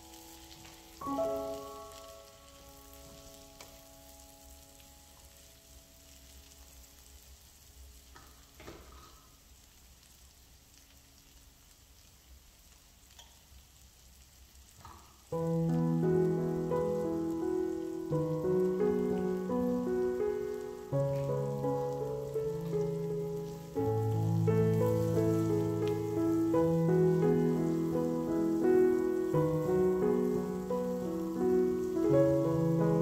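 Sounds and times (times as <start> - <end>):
sustained music notes: 0.0 - 5.8, 15.4 - 33.0
vegetables sizzling in oil: 0.0 - 33.0.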